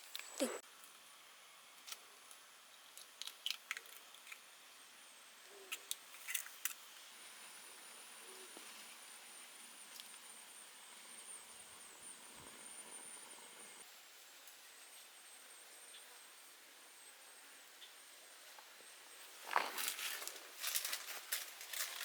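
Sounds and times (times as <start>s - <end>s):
owl hooting: 0.0s - 0.6s, 7.6s - 8.9s.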